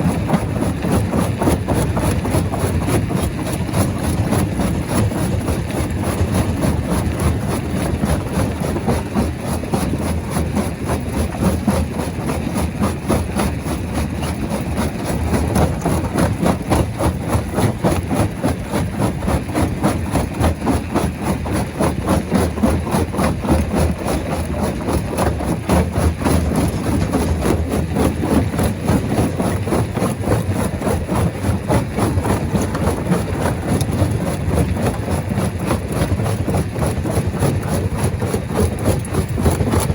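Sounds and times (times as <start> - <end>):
rock-crushing machinery running: 0.0 - 39.9.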